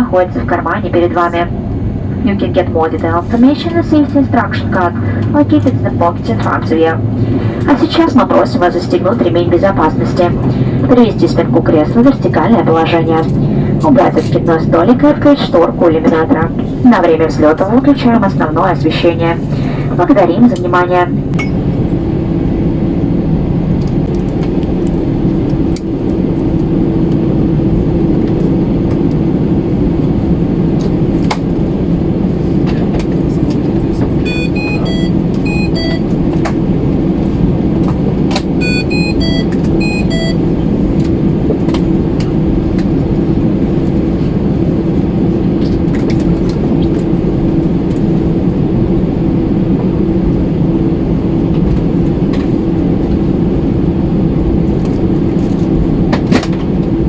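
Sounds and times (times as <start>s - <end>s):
aircraft cabin engine rumble: 0.0s - 57.0s
constant hum: 0.0s - 57.0s
high electronic beeping tones: 34.2s - 36.1s, 38.6s - 40.5s.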